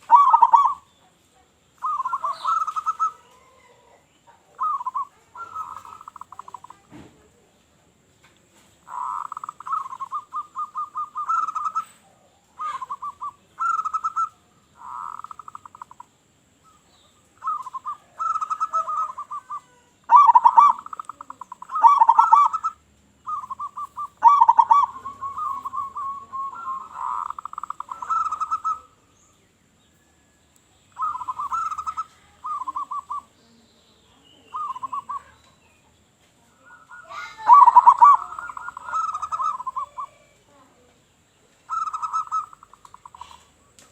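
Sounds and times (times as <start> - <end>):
dove cooing: 0.0 - 0.9, 1.8 - 6.9, 8.8 - 16.1, 16.9 - 29.1, 30.9 - 33.4, 34.4 - 35.5, 36.5 - 40.4, 41.6 - 43.7.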